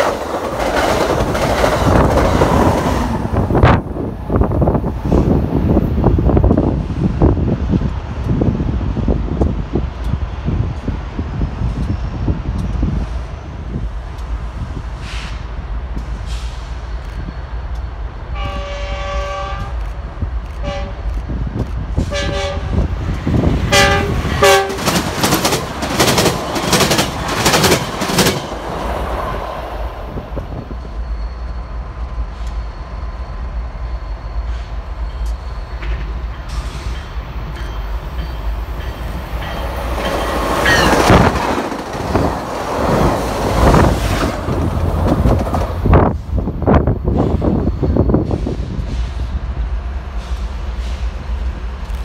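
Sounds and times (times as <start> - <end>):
train wheels clacking over joints: 0.0 - 2.9, 23.8 - 28.8
train low rumble: 0.0 - 52.0
train air horn blasts: 18.3 - 19.8, 20.6 - 21.1, 22.0 - 22.9, 23.7 - 25.0.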